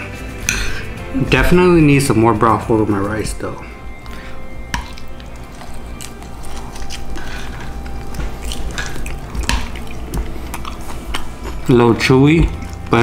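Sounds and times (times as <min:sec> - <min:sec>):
background music: 0:00.0 - 0:13.0
person chewing: 0:03.9 - 0:11.7, 0:12.5 - 0:13.0.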